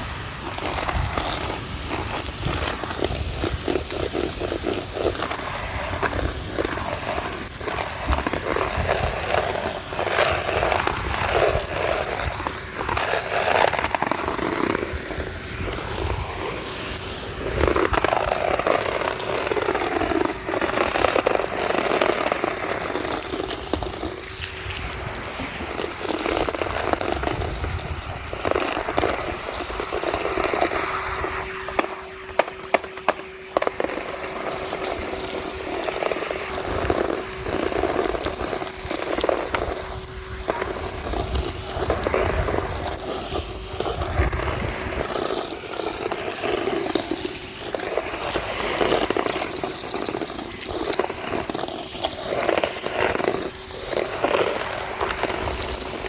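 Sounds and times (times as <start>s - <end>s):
debris rattling up hose: 0.0s - 56.0s
vacuum cleaner running: 0.0s - 56.0s.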